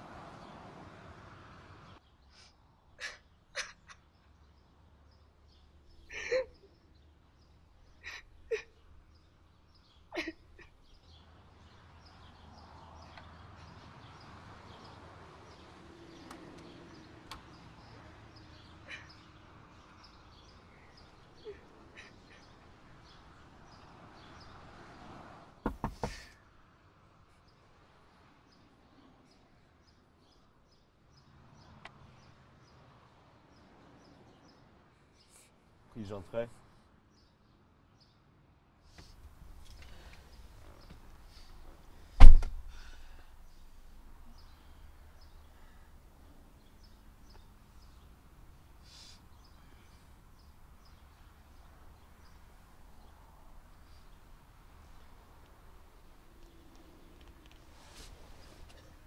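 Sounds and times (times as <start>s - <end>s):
woman sobbing: 6.1s - 6.7s, 8.0s - 8.7s, 10.1s - 10.7s
sharp knocks: 25.7s - 26.3s, 42.2s - 42.9s.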